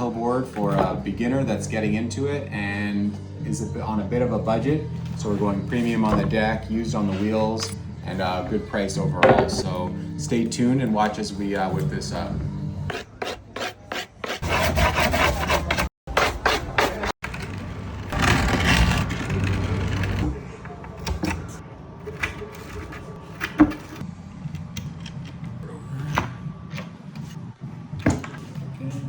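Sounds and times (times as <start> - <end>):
rubbing and scraping on wooden deck: 12.9 - 20.5.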